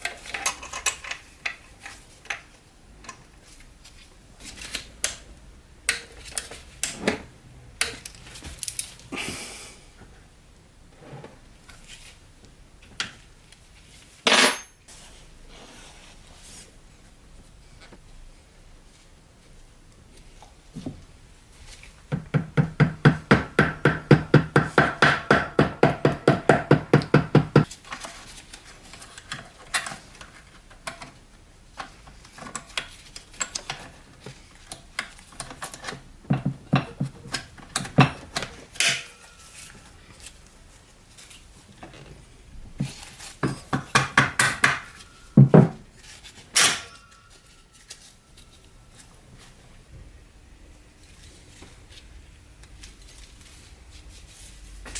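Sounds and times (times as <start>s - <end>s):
scattered knocks: 22.1s - 27.7s.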